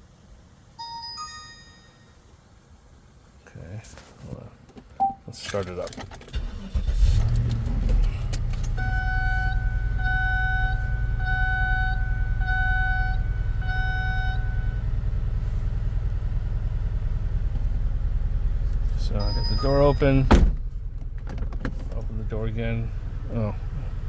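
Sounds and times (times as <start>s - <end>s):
car engine starting and idling: 4.8s - 24.0s
electronic warning beeps: 5.0s - 5.3s, 8.8s - 14.8s, 19.2s - 20.3s.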